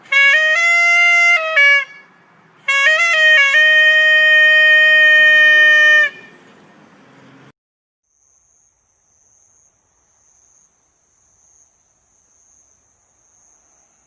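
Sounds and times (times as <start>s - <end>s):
reedy wind instrument melody: 0.0s - 6.4s.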